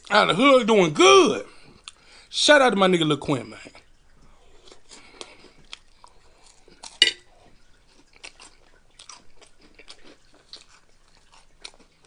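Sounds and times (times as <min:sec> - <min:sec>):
person chewing crunchy snacks: 0:04.4 - 0:12.0.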